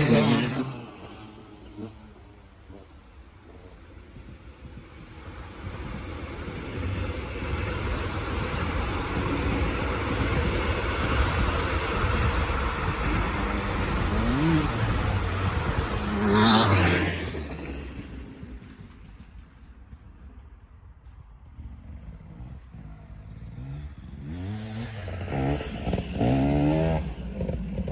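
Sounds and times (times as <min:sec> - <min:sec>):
dirt bike engine running: 0:00.0 - 0:27.9.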